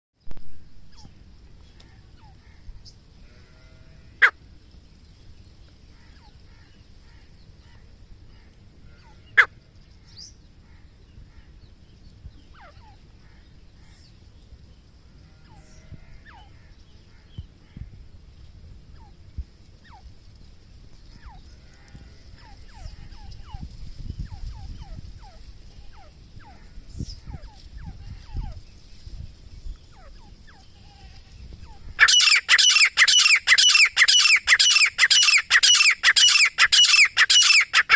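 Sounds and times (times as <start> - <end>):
faint bird calls: 0.9 - 4.4, 5.6 - 11.8, 21.0 - 29.0, 29.6 - 37.9
francolin loud repeated call: 30.1 - 37.9.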